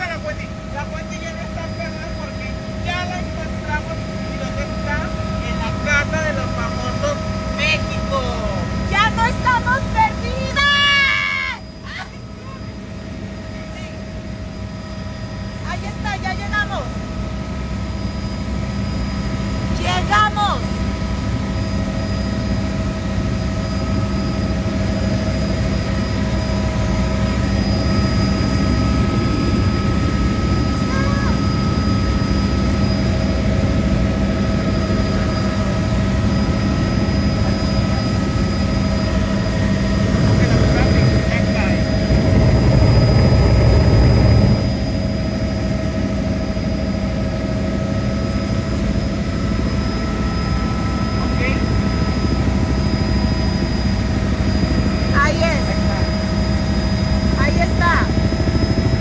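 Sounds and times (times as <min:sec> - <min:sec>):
helicopter engine and rotor drone: 0:00.0 - 0:59.0
high whine: 0:24.0 - 0:46.0.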